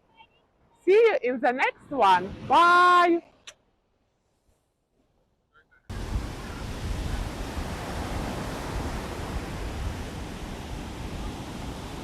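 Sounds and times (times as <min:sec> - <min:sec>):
wind noise on microphone: 0:01.8 - 0:02.8, 0:05.9 - 0:12.0
sea surf rushing: 0:05.9 - 0:12.0.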